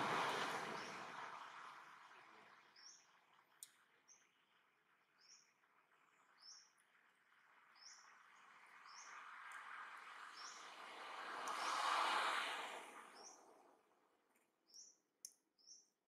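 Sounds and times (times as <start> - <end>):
small bird chirping: 2.6 - 7.1, 14.7 - 16.0
faint hiss: 8.8 - 13.7.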